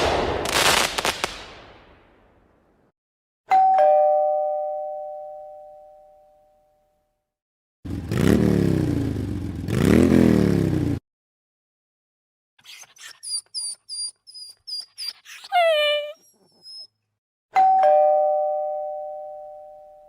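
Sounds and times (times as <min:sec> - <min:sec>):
two-tone doorbell chime: 0:03.5 - 0:07.1, 0:17.6 - 0:20.0.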